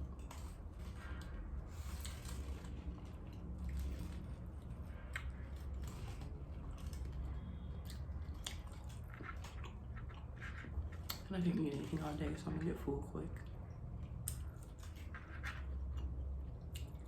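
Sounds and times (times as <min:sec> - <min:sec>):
chewing and biting food: 0:00.0 - 0:12.4, 0:13.4 - 0:17.0
steady low hum: 0:00.0 - 0:17.0
wet clicks and crunches: 0:14.0 - 0:17.0.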